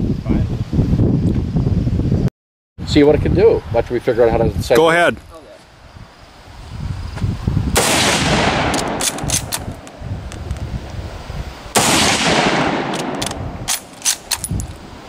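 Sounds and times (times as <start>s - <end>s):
loud gunshots with rolling echo: 7.7s - 9.9s, 11.7s - 14.3s
sharp distant gunshots: 7.8s - 9.9s, 11.8s - 14.3s.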